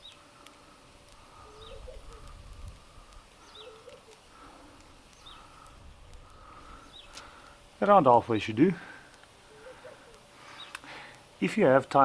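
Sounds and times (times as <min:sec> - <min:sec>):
soft low bird calls: 0:00.0 - 0:11.2
bird sharp chirp: 0:03.4 - 0:03.9.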